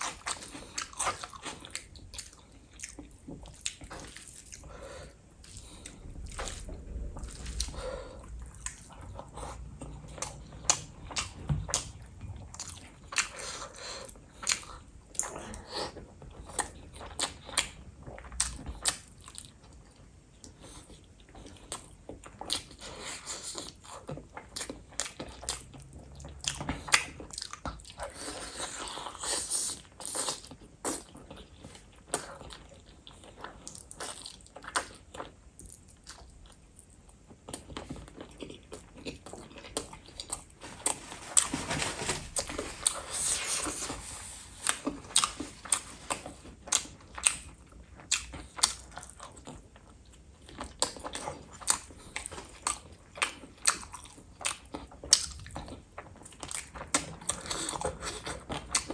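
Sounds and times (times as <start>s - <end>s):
person chewing and biting: 5.4s - 19.9s, 42.3s - 58.9s.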